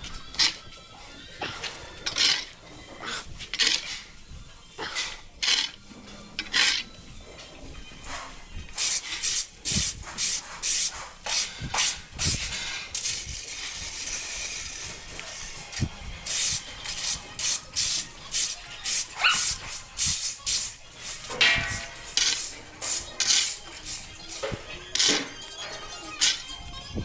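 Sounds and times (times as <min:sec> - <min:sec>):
fork scraping through stall bedding: 0:00.0 - 0:04.2, 0:04.8 - 0:07.0, 0:09.0 - 0:26.5.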